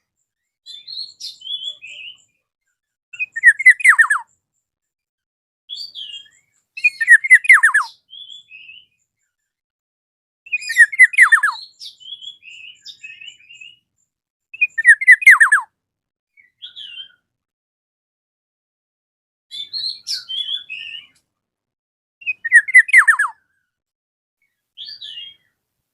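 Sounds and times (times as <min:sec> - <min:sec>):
soft high bird chirps: 0:00.0 - 0:04.8, 0:05.7 - 0:09.6, 0:10.5 - 0:15.7, 0:16.3 - 0:17.3, 0:19.5 - 0:21.3, 0:22.2 - 0:23.8, 0:24.4 - 0:25.6.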